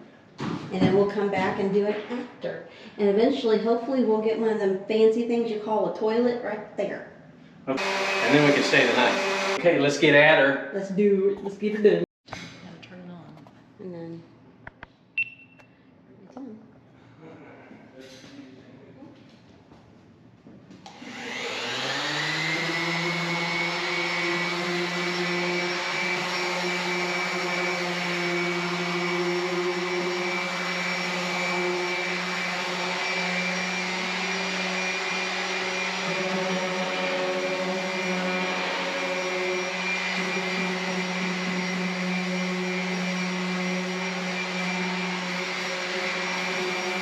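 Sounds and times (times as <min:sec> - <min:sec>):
motor spinning up with high whine: 0:07.7 - 0:09.6, 0:20.9 - 0:47.0.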